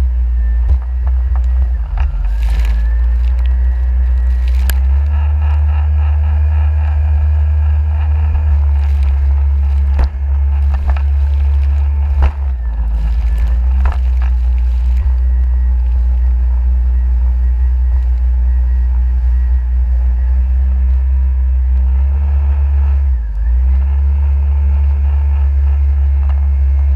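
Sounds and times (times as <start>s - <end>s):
jet ski engine running: 0.0s - 22.1s
wind rumble on microphone: 0.0s - 26.9s.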